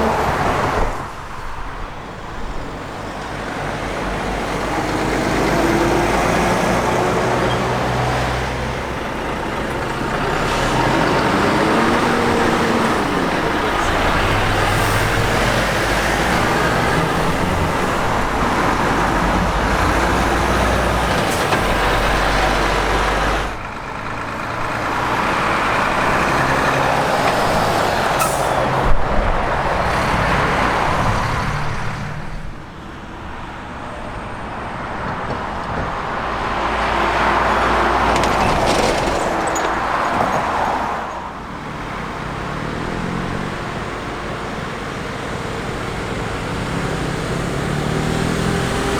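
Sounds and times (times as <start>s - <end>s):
heavy trucks passing: 0.0s - 48.9s.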